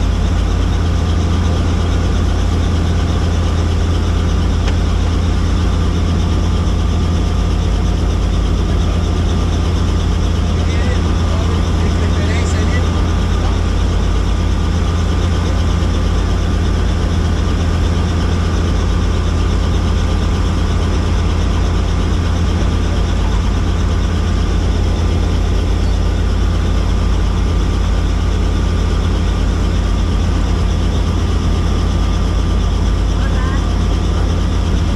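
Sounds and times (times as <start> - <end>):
helicopter running: 0.0 - 34.9.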